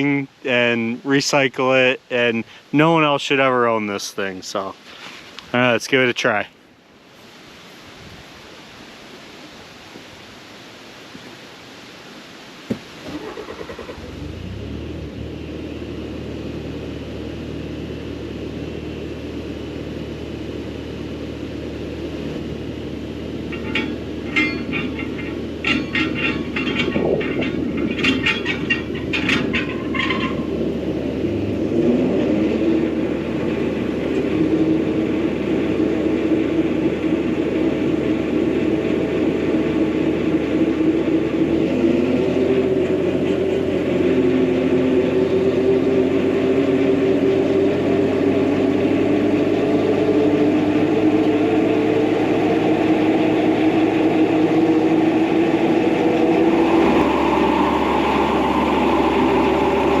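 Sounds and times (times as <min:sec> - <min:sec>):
diesel engine running: 0:13.1 - 1:00.0.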